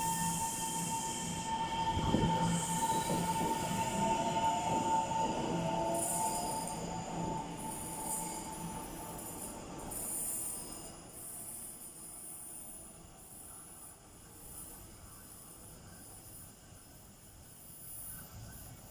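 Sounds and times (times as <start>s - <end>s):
electric train pulling away: 0.0s - 12.8s.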